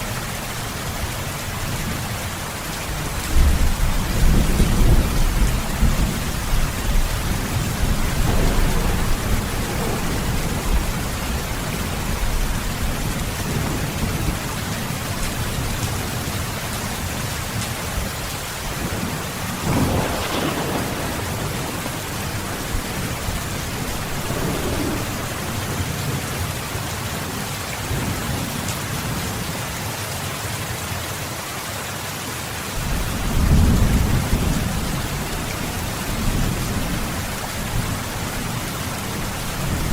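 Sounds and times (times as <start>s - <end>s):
heavy rain: 0.0s - 39.9s
thunder rumbling: 2.9s - 26.7s, 32.8s - 39.9s.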